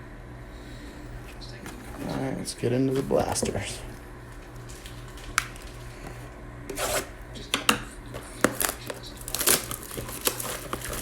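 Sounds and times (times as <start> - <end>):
plastic wrapping crinkling and tearing: 4.4 - 6.0, 8.1 - 11.0
cardboard and cards clicking: 7.4 - 11.0.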